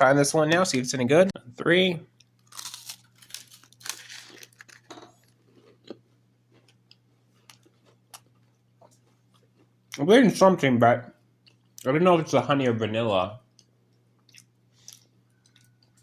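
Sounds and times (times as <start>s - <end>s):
person crunching and chewing bar: 2.3s - 9.7s.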